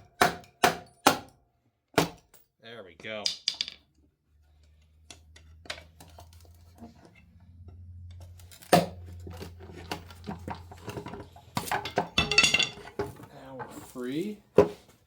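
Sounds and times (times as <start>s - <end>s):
metal cover clattering: 9.9s - 13.2s.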